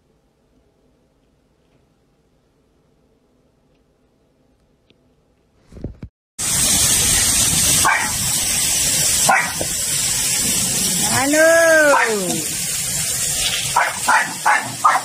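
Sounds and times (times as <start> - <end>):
churning water rushing: 6.4 - 15.0
dog barks: 7.8 - 8.2, 9.3 - 9.7, 11.9 - 12.2, 13.7 - 15.0.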